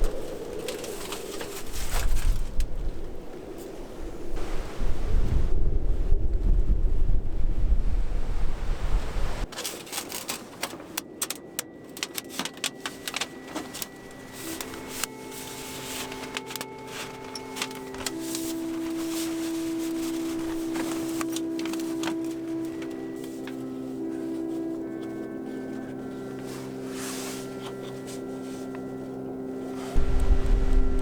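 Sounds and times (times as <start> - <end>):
wind buffeting microphone: 0.0 - 9.5, 30.0 - 31.0
soft held music notes: 9.4 - 31.0
sharp crackling clicks: 9.5 - 24.1.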